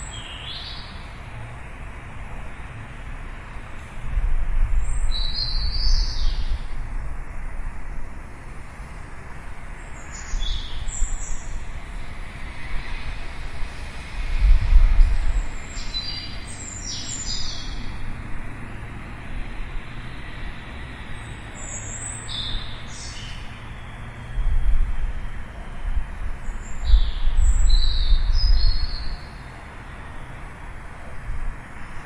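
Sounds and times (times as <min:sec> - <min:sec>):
small birds chirping: 0:00.0 - 0:01.1, 0:04.8 - 0:06.7, 0:09.8 - 0:11.6, 0:15.3 - 0:18.0, 0:21.1 - 0:24.0, 0:26.4 - 0:30.0.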